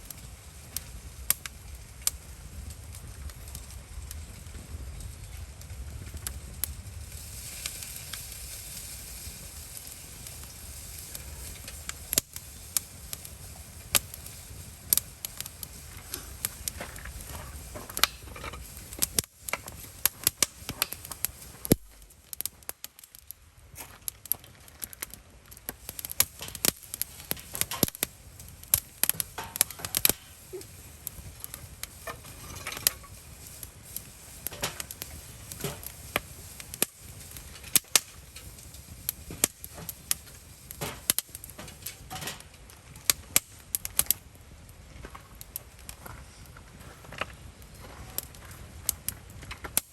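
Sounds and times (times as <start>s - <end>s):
campfire crackling and popping: 0.0s - 49.9s.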